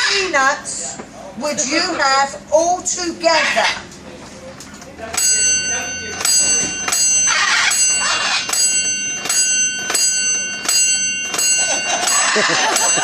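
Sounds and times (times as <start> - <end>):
small bell ringing: 5.2 - 13.0
audience laughter: 11.6 - 13.0.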